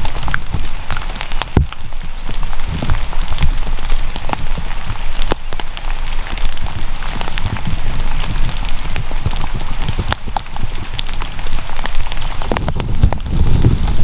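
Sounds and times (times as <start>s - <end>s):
rain ticking on a surface: 0.0s - 14.0s
low rumbling thumps: 12.4s - 14.0s.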